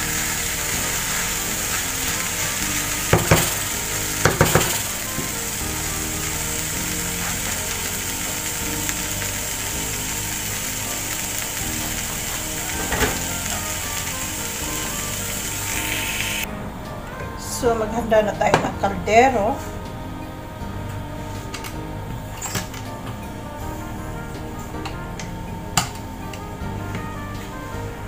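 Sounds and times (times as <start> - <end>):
rice frying sizzle: 0.0 - 17.1.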